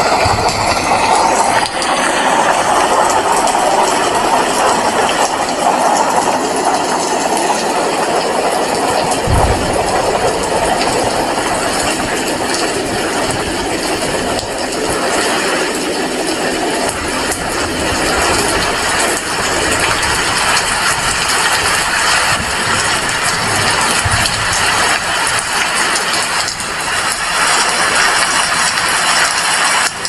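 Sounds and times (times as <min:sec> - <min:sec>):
heavy rain hissing: 0:00.0 - 0:30.0
low thump: 0:00.1 - 0:01.9, 0:09.2 - 0:13.7.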